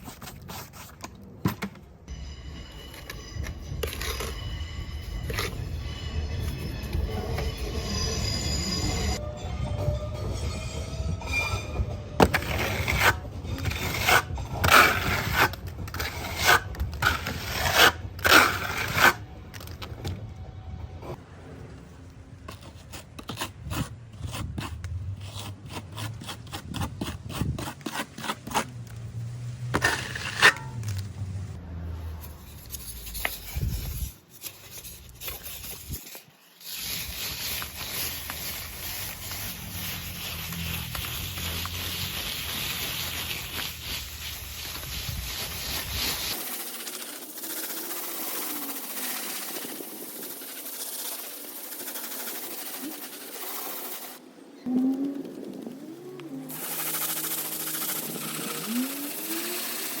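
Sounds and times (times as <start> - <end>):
hand tool scraping a wall: 12.2 - 19.7, 29.7 - 31.0, 32.2 - 54.2, 56.5 - 60.0.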